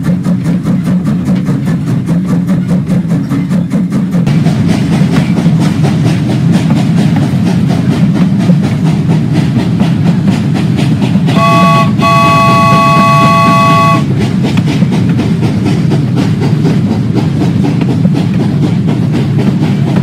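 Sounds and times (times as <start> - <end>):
steam whistle toot: 11.3 - 14.1.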